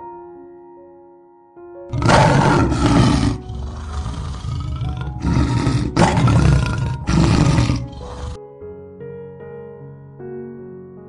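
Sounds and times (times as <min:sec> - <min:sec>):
lion roaring: 0:01.9 - 0:08.4.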